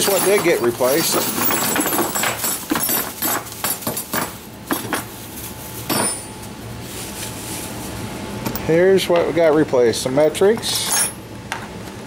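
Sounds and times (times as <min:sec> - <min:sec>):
metal hand tools clinking: 0:00.0 - 0:04.9, 0:10.6 - 0:11.2.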